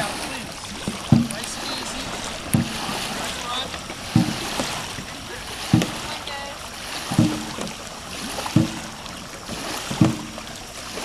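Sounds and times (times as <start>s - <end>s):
paddle stroke thumps: 0.0s - 10.5s
water washing: 0.0s - 11.0s.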